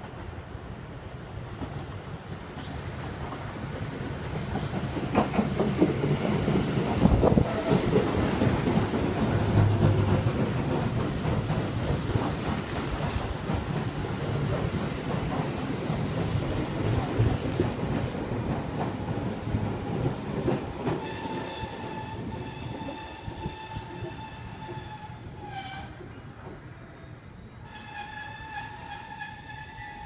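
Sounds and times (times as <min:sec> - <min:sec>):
train wheels clicking over rail joints: 0:01.6 - 0:22.0.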